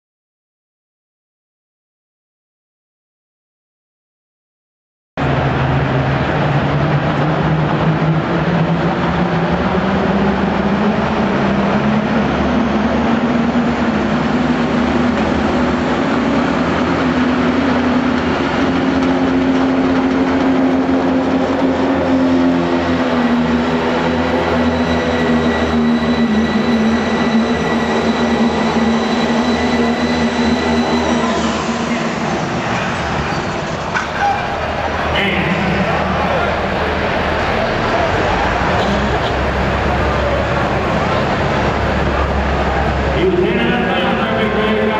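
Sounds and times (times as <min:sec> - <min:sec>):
diesel engine under load: 0:05.2 - 0:44.9
high steady whistle: 0:24.6 - 0:31.7.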